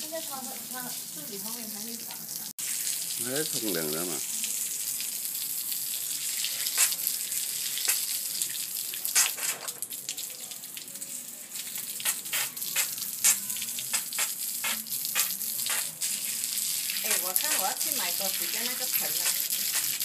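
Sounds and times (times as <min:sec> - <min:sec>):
water hissing: 0:06.1 - 0:08.3, 0:11.6 - 0:20.0.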